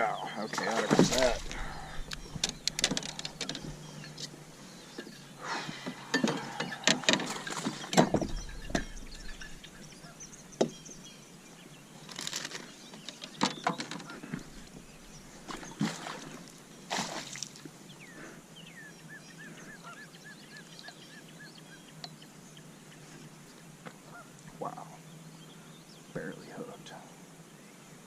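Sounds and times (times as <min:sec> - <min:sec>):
sharp knocks: 0:06.2 - 0:09.8
geese honking: 0:08.6 - 0:10.3.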